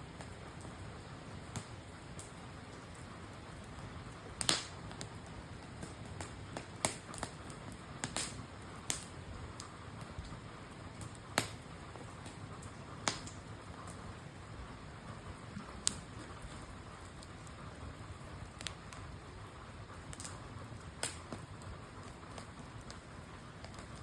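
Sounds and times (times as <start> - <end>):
campfire crackling: 0.0 - 24.0
low hiss of fire: 0.0 - 24.0.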